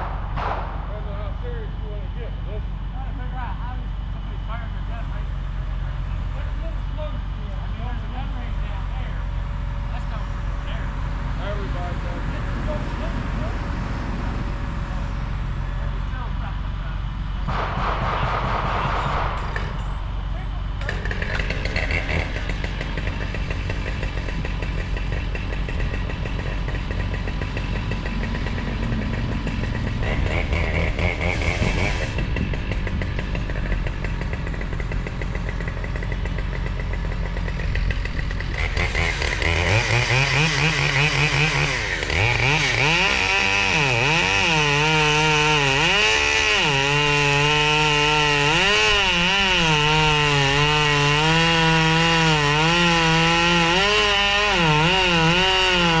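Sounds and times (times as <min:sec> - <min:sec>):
chainsaw cutting wood: 0:17.5 - 0:19.9, 0:20.7 - 0:56.0
machine running: 0:20.8 - 0:43.2.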